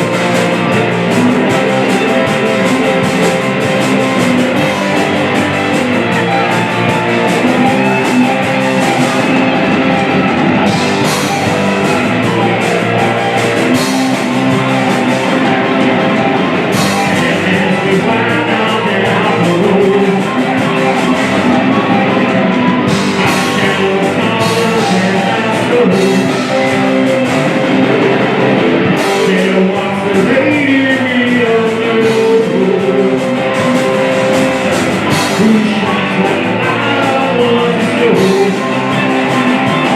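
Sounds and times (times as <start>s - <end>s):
drums: 0.0s - 39.9s
person singing: 0.0s - 39.9s
rock music with electric guitar: 0.0s - 39.9s.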